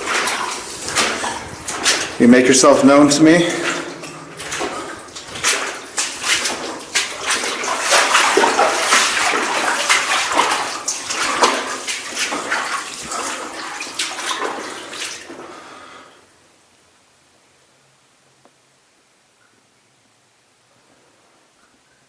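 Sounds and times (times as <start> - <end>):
footsteps splashing through water: 0.0 - 16.0.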